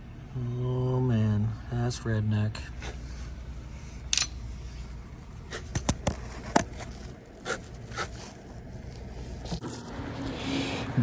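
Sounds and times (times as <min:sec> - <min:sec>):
low steady hum: 0:00.0 - 0:11.0
sharp handling clicks: 0:04.1 - 0:04.4.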